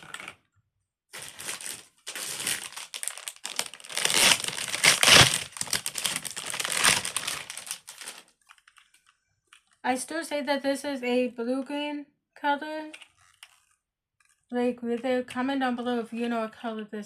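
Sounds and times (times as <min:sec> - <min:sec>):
plastic packaging crinkling: 0:01.2 - 0:09.8.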